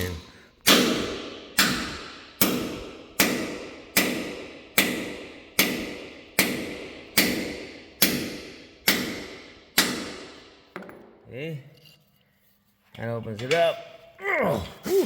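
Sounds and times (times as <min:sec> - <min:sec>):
hammer striking steel pin: 0:00.6 - 0:11.1.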